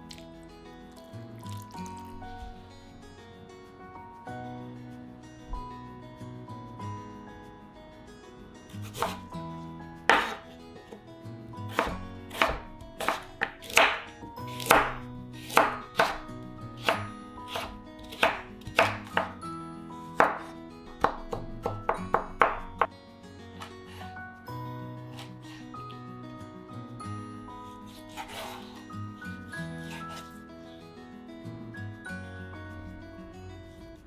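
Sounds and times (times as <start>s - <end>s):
knife chopping on cutting board: 8.8s - 9.3s, 10.1s - 10.6s, 11.7s - 19.4s, 20.2s - 22.8s, 27.9s - 28.6s, 29.8s - 30.3s.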